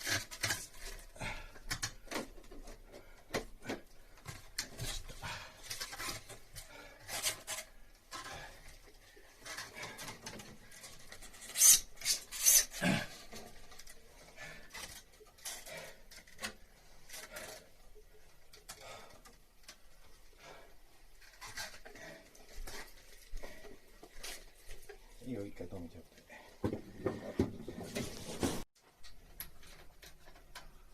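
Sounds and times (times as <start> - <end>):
rubbing and scraping by hand: 26.8 - 28.7.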